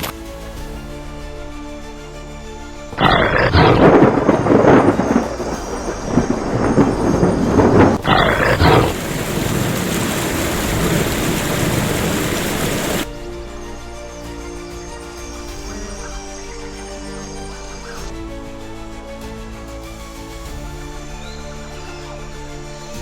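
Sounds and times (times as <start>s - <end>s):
soundtrack music: 0.0s - 23.0s
steady rushing hiss: 2.9s - 19.2s
loud crash with rumbling: 3.0s - 13.1s.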